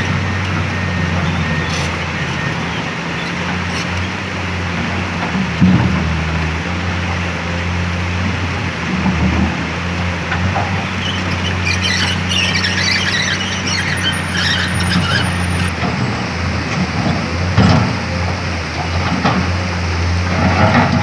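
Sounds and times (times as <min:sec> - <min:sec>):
metallic squealing and scraping: 0:00.0 - 0:04.2, 0:10.5 - 0:15.8
excavator diesel engine running: 0:00.0 - 0:21.0.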